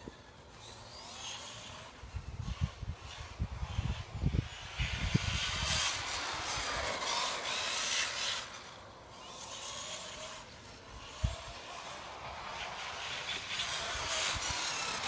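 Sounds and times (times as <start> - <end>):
faint electric motor whine: 0.0 - 15.0
tyres scrubbing on loose ground: 4.6 - 15.0.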